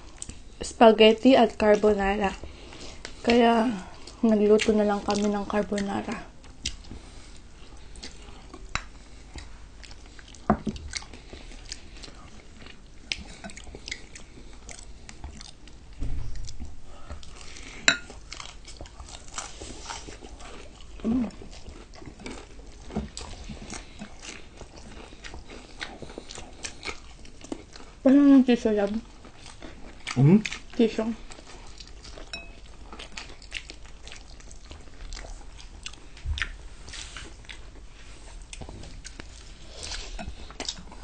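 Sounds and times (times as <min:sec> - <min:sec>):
chewing crispy food: 0:01.4 - 0:41.0.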